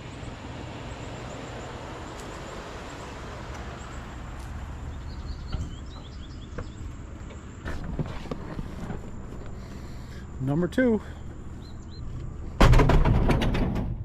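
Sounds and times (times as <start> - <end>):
low outdoor background noise: 0.0 - 13.7
faint bird chirps: 11.2 - 12.2.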